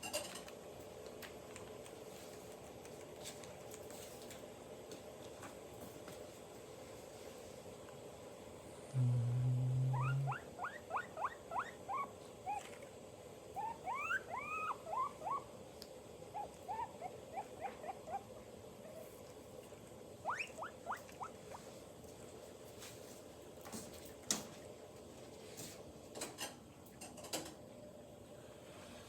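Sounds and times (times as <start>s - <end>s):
low buzz: 8.9s - 10.4s
guinea pig squeaking: 9.9s - 12.8s, 13.5s - 15.6s, 16.3s - 19.2s, 20.2s - 21.7s.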